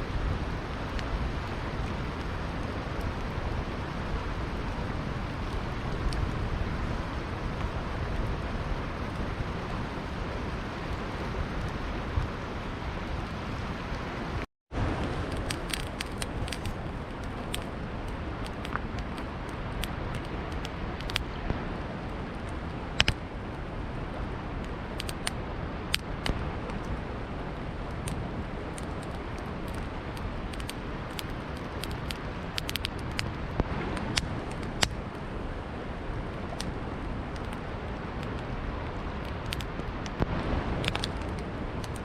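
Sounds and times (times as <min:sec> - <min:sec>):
campfire crackling: 0:00.0 - 0:42.0
river rushing: 0:00.0 - 0:42.0
sharp pops from fire: 0:15.0 - 0:21.7, 0:22.5 - 0:23.2, 0:28.0 - 0:35.1, 0:36.5 - 0:42.0.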